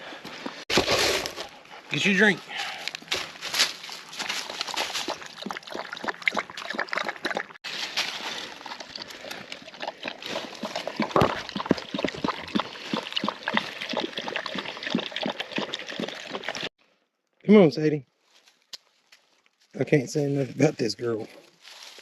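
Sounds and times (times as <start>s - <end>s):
dog lapping water: 4.3s - 7.6s, 8.4s - 16.7s.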